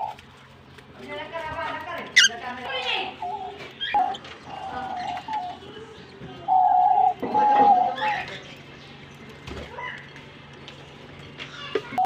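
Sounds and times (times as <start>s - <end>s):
lovebirds calling: 0.0s - 12.0s.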